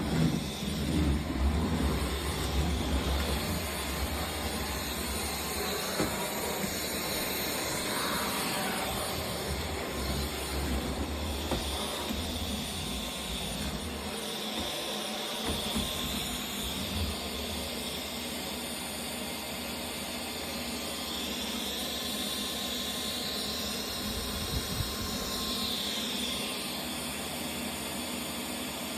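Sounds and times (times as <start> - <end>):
vacuum cleaner running: 0.0 - 28.9.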